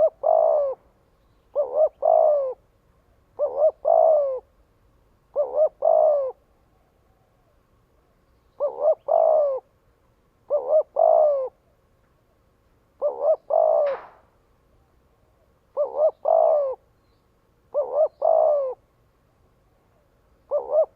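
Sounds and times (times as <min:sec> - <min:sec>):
dove cooing: 0:00.0 - 0:04.6, 0:05.2 - 0:09.8, 0:10.4 - 0:11.8, 0:13.0 - 0:14.3, 0:15.2 - 0:16.9, 0:17.7 - 0:18.9, 0:19.7 - 0:20.9.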